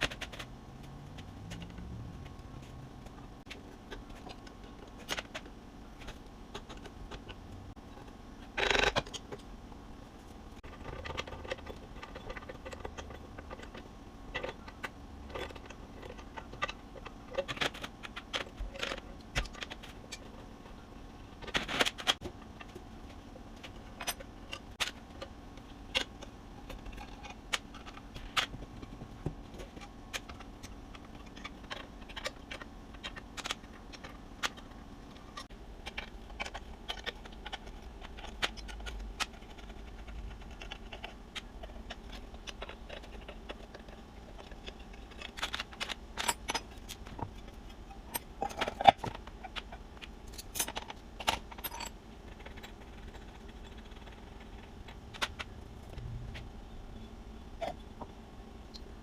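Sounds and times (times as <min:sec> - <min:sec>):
faint steady hum: 0:00.0 - 0:59.0
metal tools clinking: 0:51.5 - 0:51.9.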